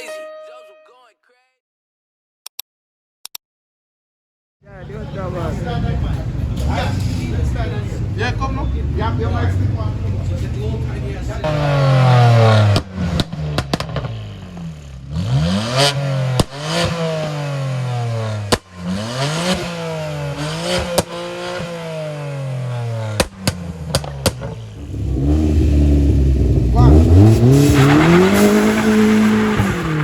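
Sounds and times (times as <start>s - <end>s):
car engine revving: 5.1s - 30.0s.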